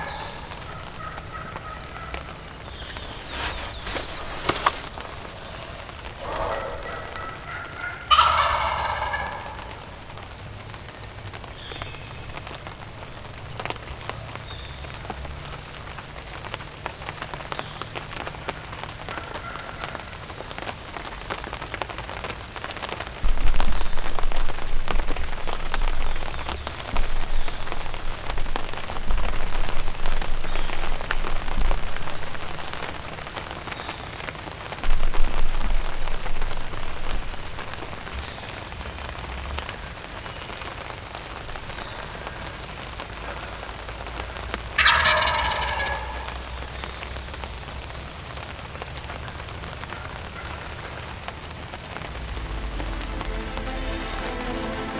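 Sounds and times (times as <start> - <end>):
rain pattering: 0.0 - 54.9
low rumbling: 51.5 - 54.9.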